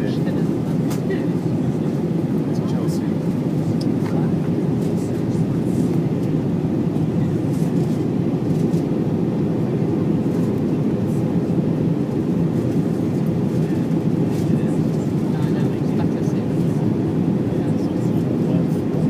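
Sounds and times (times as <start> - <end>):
jet cabin engine rush: 0.0 - 19.0.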